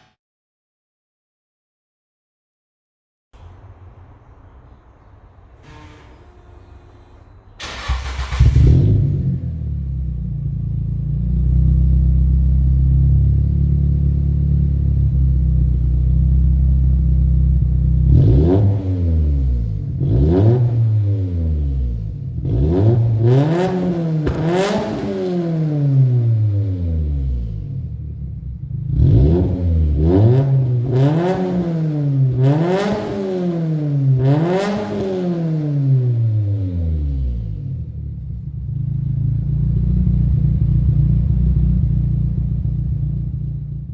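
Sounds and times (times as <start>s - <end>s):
car engine idling: 3.4s - 18.1s, 37.4s - 43.9s
car engine revving: 3.4s - 43.9s.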